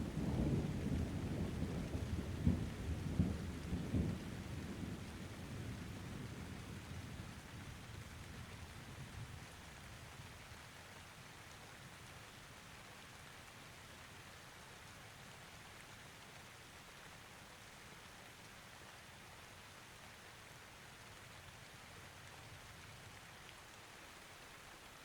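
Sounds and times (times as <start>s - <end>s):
low thunder rumble: 0.0s - 9.4s
steady rain falling: 0.0s - 25.0s.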